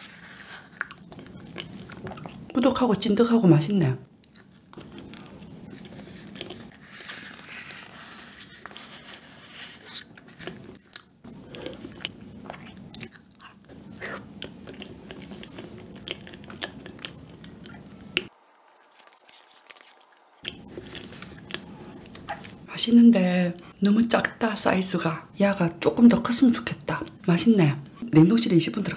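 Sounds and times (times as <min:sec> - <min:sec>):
wet chewing: 0:00.0 - 0:02.6, 0:04.2 - 0:06.8, 0:10.0 - 0:22.7
mouth clicks and smacks: 0:13.8 - 0:18.3, 0:18.9 - 0:22.6
spoon scooping from paper cup: 0:18.8 - 0:22.6.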